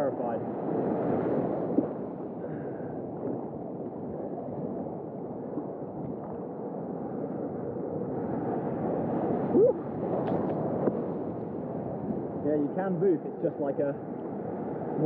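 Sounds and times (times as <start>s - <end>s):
ocean surf rushing: 0.0s - 4.6s.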